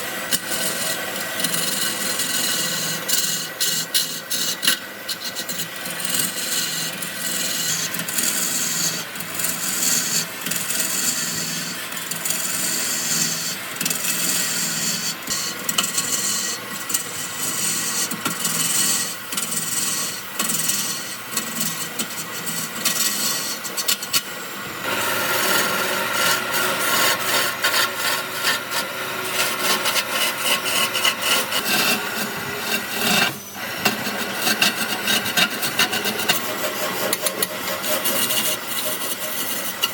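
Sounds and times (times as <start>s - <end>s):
hand tool scraping wood: 22.0s - 39.9s.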